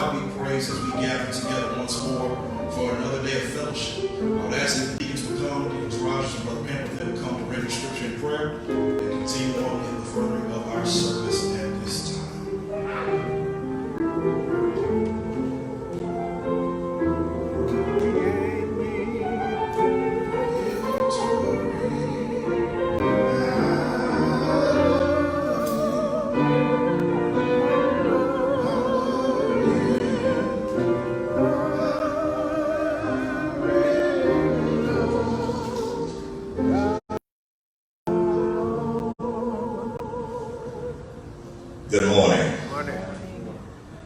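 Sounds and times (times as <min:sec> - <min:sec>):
sustained instrumental accompaniment: 0:00.0 - 0:37.0
singing with vibrato: 0:17.7 - 0:37.1, 0:38.1 - 0:42.5.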